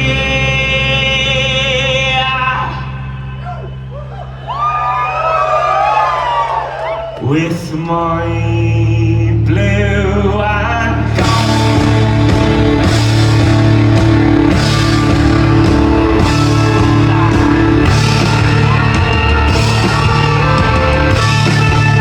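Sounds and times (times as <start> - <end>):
live rock band playing: 11.0 - 22.0.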